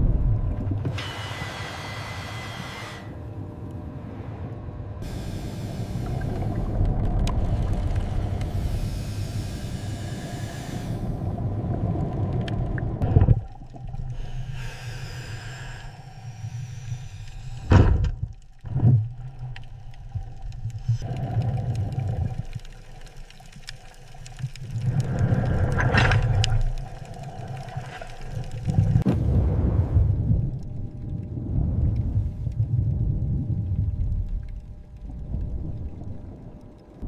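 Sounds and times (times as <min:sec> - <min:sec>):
deep low rumbling: 0:00.0 - 0:00.9, 0:24.8 - 0:37.0.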